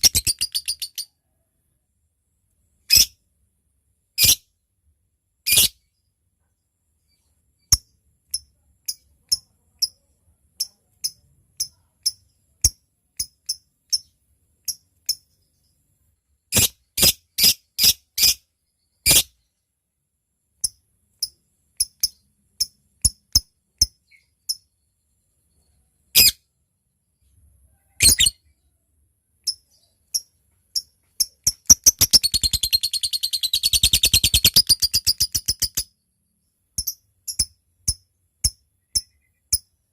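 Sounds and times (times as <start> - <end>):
lovebird chirping: 0.0 - 1.3, 5.4 - 6.0, 7.0 - 15.8, 20.6 - 26.4, 27.2 - 28.8, 29.4 - 39.9
lovebird rattling trill: 30.8 - 35.9.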